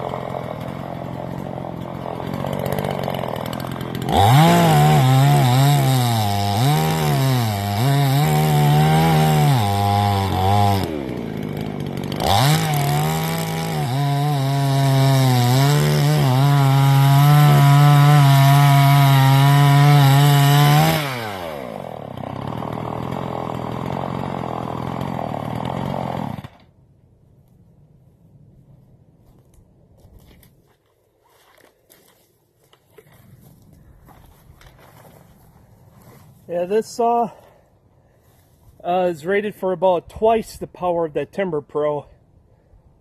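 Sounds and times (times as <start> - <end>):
chainsaw idling: 0.0 - 26.7
chainsaw cutting log: 0.0 - 26.8.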